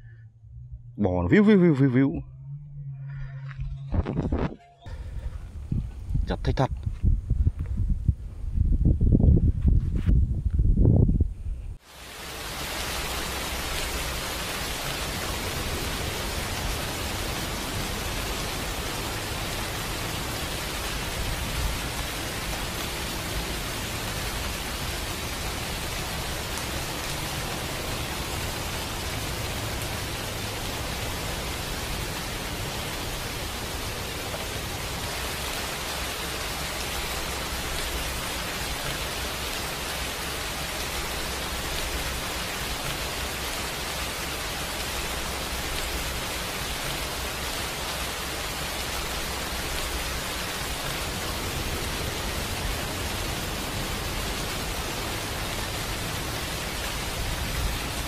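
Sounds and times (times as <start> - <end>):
low rumble: 0.0 - 11.8
rain falling on pond: 11.8 - 58.0.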